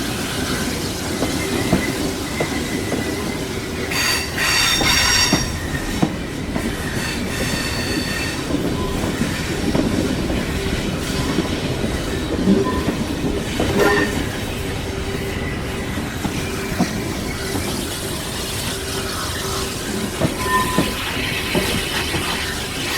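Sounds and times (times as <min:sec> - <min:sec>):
train wheels rumbling on rails: 0:00.0 - 0:22.9
wheel flanges squealing: 0:10.6 - 0:22.9.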